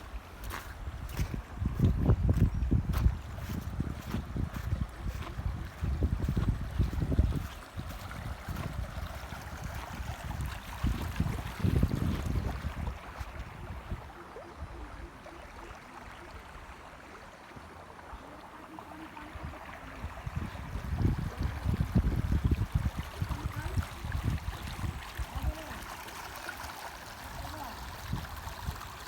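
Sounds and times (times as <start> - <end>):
running water rushing: 0.0 - 29.0
wind buffeting microphone: 0.2 - 15.1, 19.2 - 25.8.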